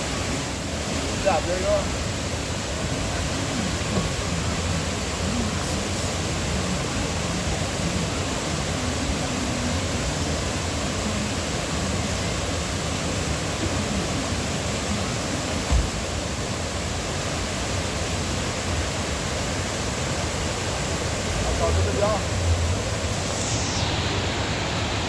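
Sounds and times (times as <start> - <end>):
waterfall rushing: 0.0 - 25.0
low thump: 15.7 - 16.0.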